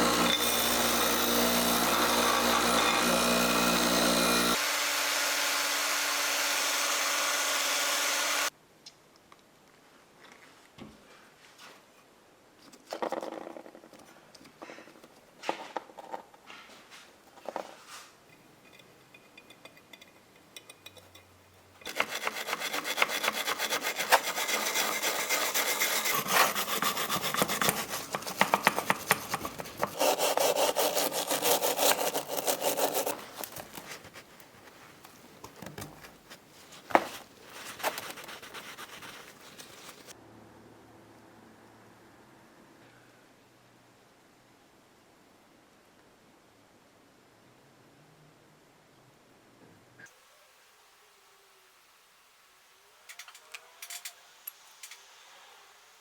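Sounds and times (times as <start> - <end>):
abrasive scraping by hand: 21.8 - 35.0.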